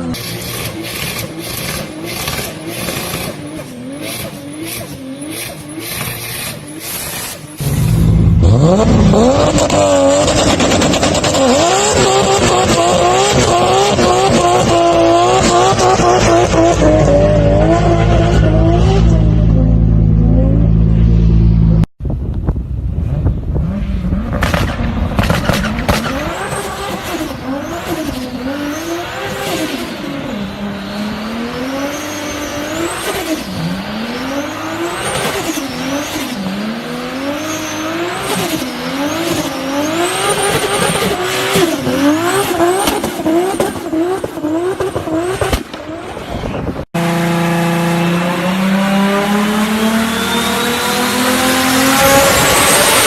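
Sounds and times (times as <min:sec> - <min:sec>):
car engine revving: 0:00.0 - 0:21.9, 0:22.8 - 0:53.0
exhaust cracks and pops: 0:24.3 - 0:27.0.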